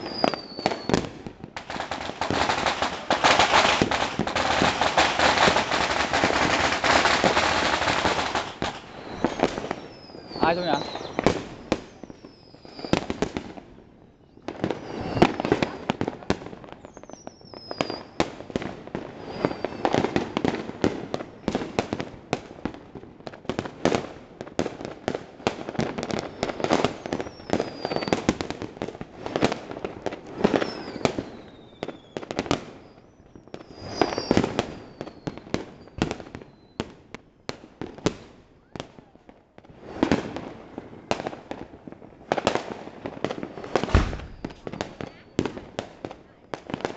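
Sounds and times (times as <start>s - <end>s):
falling whistles: 0.0s - 1.0s, 8.5s - 13.1s, 14.2s - 15.9s, 16.8s - 18.2s, 19.2s - 20.1s, 26.2s - 28.3s, 30.5s - 36.8s, 43.7s - 45.4s
fireworks bangs and crackles: 0.0s - 46.9s.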